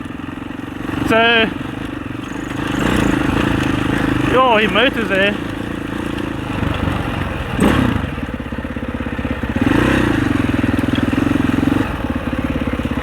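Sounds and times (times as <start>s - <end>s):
dirt bike engine running: 0.0s - 13.0s
sharp clatter: 0.9s - 8.4s.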